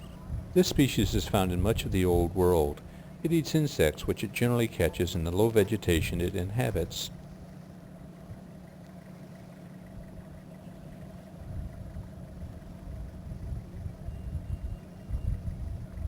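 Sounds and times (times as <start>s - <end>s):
uneven low rumbling: 0.0s - 7.6s.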